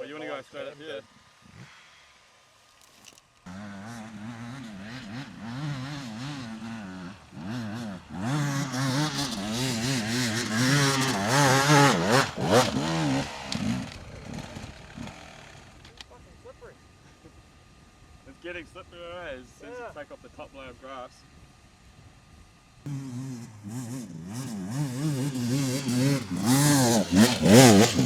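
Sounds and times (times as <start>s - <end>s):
dirt bike engine revving: 3.5s - 16.0s, 22.8s - 28.0s.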